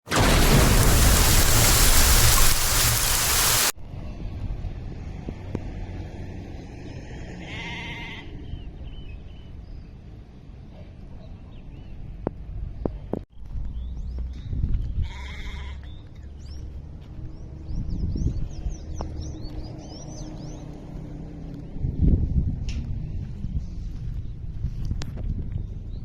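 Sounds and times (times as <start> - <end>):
heavy rain hissing: 0.0 - 3.7
low rumble: 0.1 - 3.7
livestock bleating: 7.4 - 8.2.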